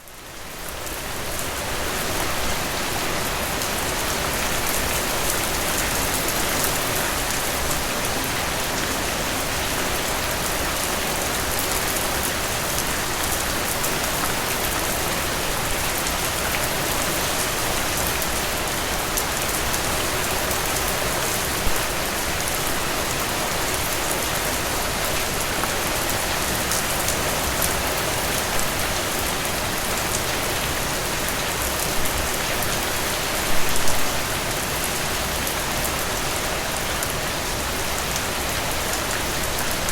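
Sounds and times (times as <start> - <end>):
rain falling through trees: 0.0 - 39.9.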